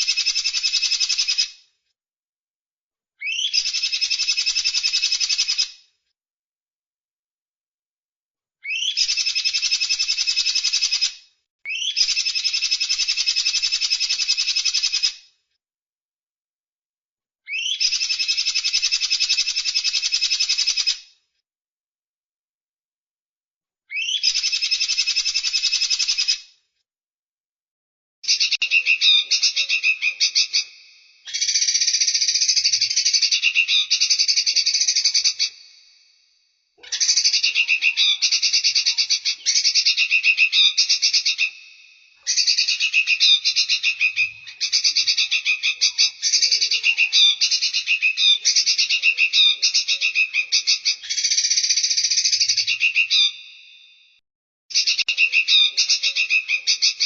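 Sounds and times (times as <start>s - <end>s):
songbird trilling: 3.2s - 5.6s, 8.7s - 10.8s, 11.7s - 13.2s, 17.5s - 18.8s, 23.9s - 26.3s, 28.3s - 35.8s, 36.8s - 53.6s.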